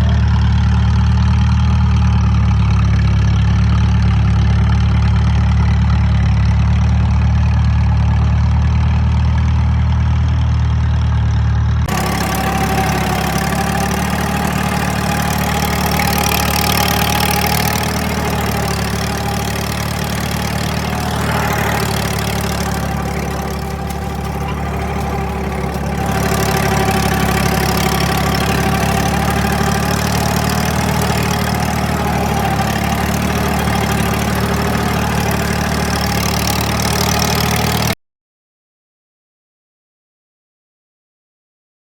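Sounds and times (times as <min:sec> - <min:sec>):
tractor engine running: 0:11.6 - 0:38.0.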